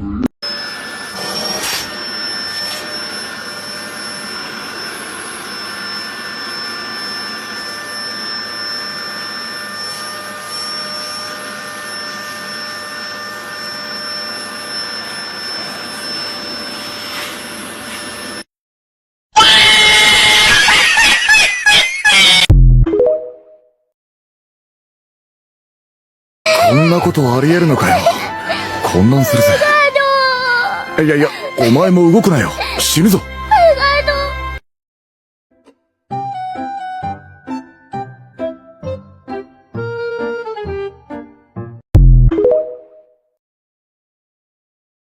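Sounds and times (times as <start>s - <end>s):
whirring appliance motor: 0.5s - 18.4s.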